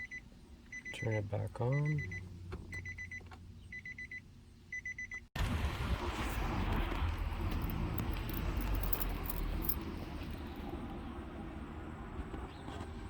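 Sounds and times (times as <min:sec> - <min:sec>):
car dash chime beeping: 0:00.0 - 0:05.2.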